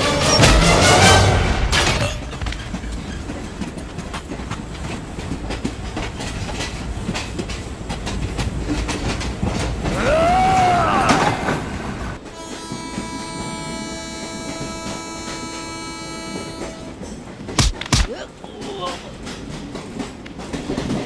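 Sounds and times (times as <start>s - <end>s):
train wheels clicking and rumbling: 0.0s - 21.0s
man yelling: 9.9s - 11.6s.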